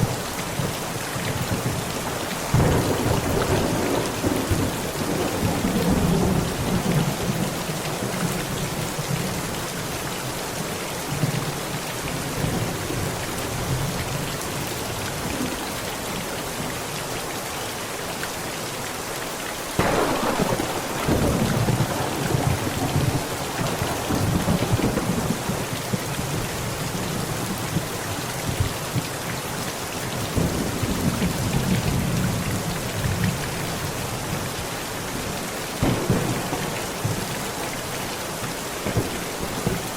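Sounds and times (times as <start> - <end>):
heavy rain on a tent: 0.0 - 39.9
thunder rumbling: 2.5 - 7.6, 19.8 - 27.0, 35.8 - 39.9
thunderclap: 19.8 - 26.2, 35.8 - 39.9.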